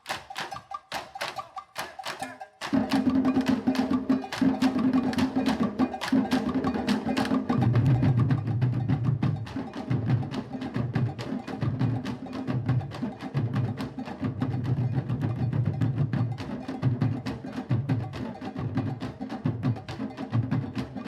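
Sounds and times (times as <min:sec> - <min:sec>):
drum ensemble playing: 0:00.0 - 0:21.0.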